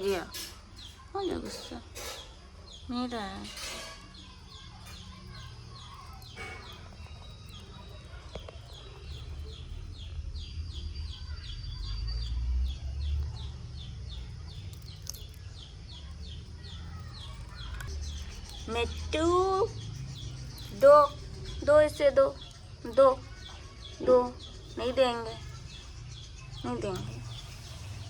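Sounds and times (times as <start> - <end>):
bird chirping: 0.0 - 28.0.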